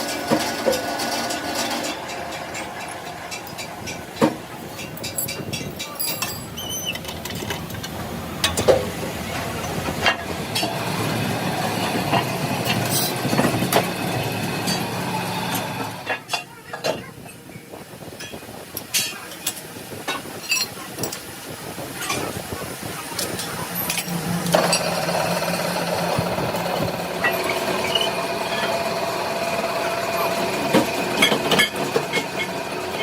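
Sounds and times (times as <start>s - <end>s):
metal clinks and knocks: 1.3s - 8.8s
machine running: 23.7s - 33.0s.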